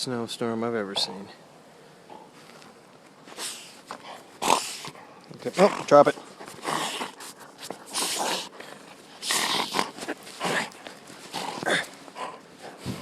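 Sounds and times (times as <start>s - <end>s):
dog huffing through nose: 5.6s - 13.0s.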